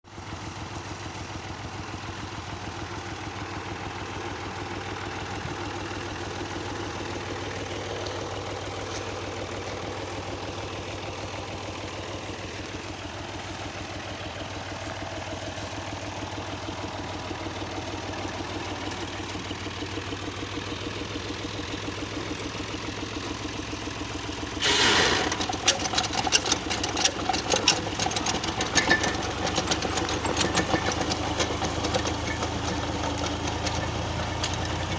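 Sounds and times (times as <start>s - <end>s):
tractor diesel engine knocking: 0.1s - 34.9s
metallic clattering and rattling: 24.6s - 34.9s.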